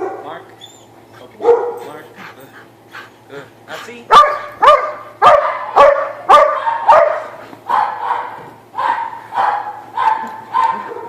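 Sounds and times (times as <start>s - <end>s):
dog barking: 0.0s - 0.4s, 1.4s - 2.0s, 4.1s - 11.0s.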